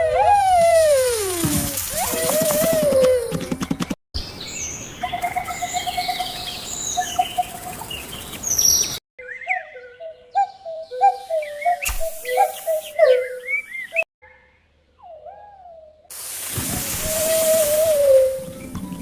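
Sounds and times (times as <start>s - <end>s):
birds chirping and calling: 4.2s - 14.4s
bird warbling whistled calls: 5.0s - 14.4s, 16.8s - 19.0s.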